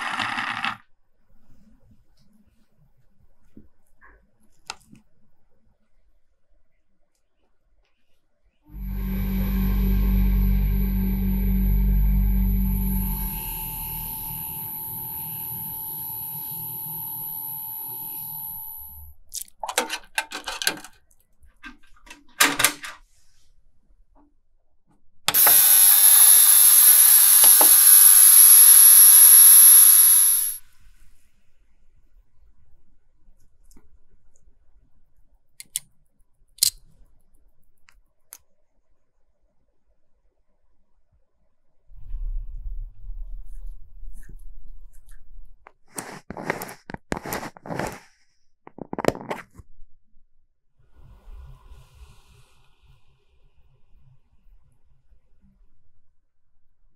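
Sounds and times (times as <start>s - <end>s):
ultrasonic cleaner hissing and whining: 8.7s - 19.0s, 25.3s - 30.6s
plastic lid rubbing and scraping: 45.9s - 49.5s.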